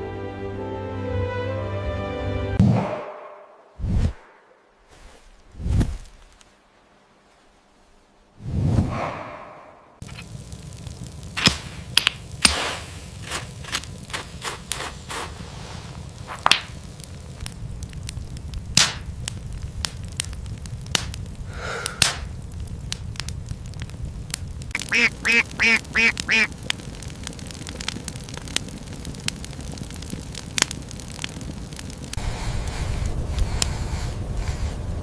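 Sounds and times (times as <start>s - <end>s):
low rumble: 2.6s - 6.4s, 8.4s - 14.4s, 15.2s - 35.0s
duck quacking: 24.8s - 26.5s.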